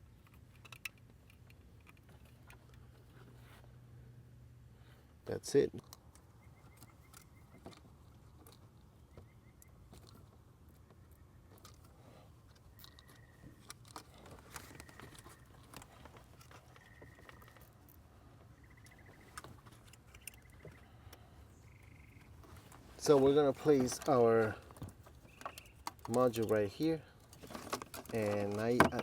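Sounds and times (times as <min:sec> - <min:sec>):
hands handling wiring and plastic: 0:00.0 - 0:03.7, 0:05.8 - 0:29.0.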